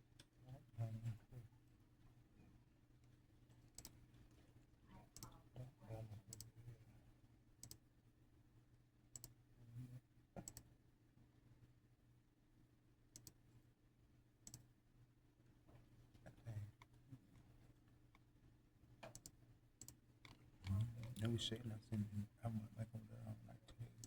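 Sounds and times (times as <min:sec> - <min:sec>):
low steady hum: 0:11.4 - 0:24.0.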